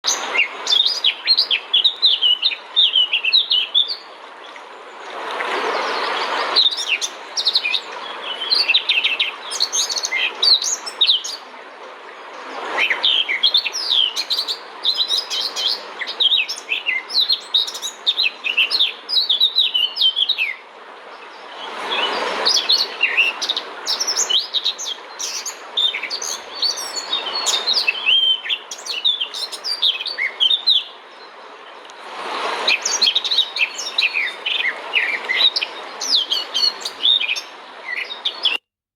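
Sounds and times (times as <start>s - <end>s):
small birds chirping: 22.5s - 32.0s, 32.7s - 38.6s.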